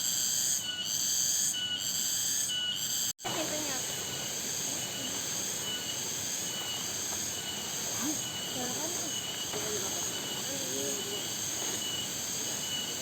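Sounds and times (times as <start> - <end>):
shrill insect chorus: 0.0 - 13.0
faint distant voices: 3.2 - 13.0.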